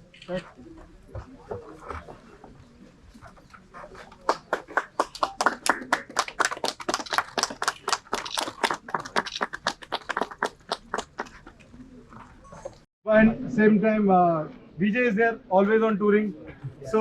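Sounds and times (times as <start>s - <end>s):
crowd clapping hands: 3.9s - 11.7s.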